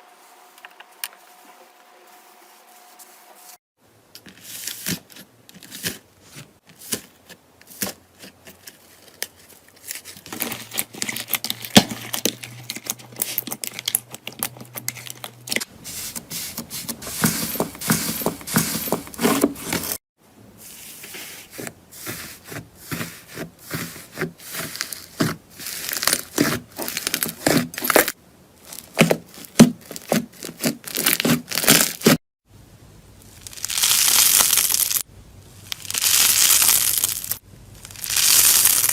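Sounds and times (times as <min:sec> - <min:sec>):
slime crackling and popping: 0:33.4 - 0:35.0, 0:35.7 - 0:38.9.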